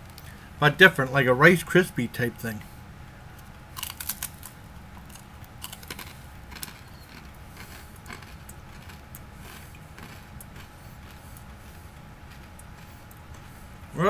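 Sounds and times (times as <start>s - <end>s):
person chewing crunchy cracker: 3.7s - 13.8s.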